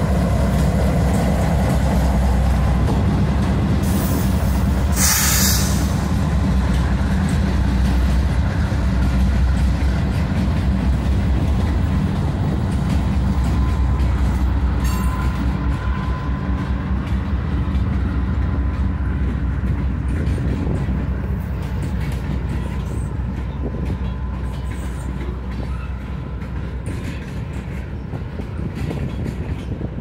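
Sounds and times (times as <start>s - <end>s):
freight train wheels rumbling: 0.0s - 30.0s.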